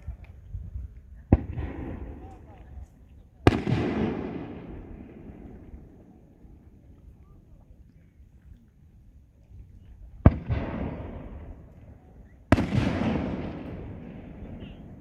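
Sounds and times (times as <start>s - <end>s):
rumble after firework bang: 1.3s - 2.7s, 3.5s - 6.1s, 10.2s - 11.7s.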